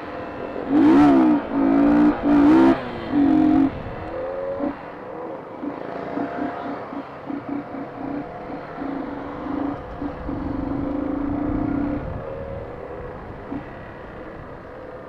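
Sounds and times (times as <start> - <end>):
motorcycle engines running: 0.0 - 15.0.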